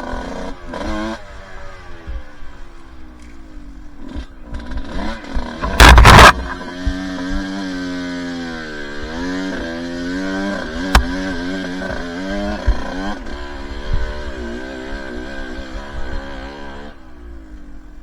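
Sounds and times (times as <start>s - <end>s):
dirt bike engine revving: 0.0s - 17.8s
sharp knock: 5.6s - 6.6s, 10.9s - 11.3s.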